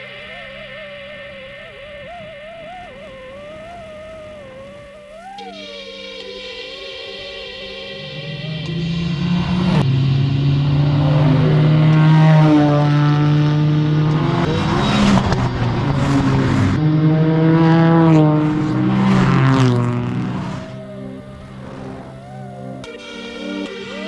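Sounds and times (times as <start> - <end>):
small car engine at high revs: 8.0 - 24.0.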